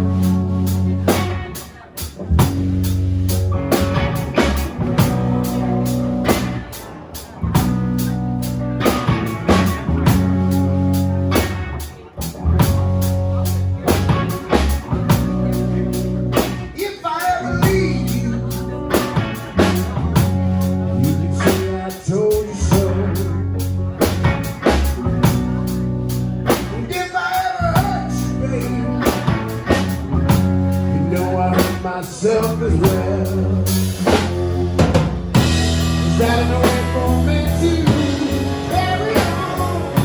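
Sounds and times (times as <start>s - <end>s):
bass guitar notes: 0.0s - 40.0s
bending guitar lead lines: 0.0s - 40.0s
drum kit beat: 0.0s - 40.0s
slow blues band playing: 0.0s - 40.0s.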